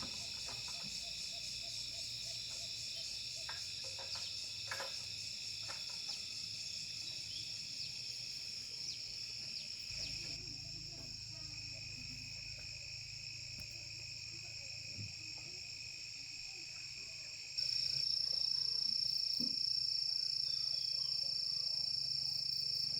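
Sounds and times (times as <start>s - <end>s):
high-pitched insect chorus: 0.0s - 22.9s.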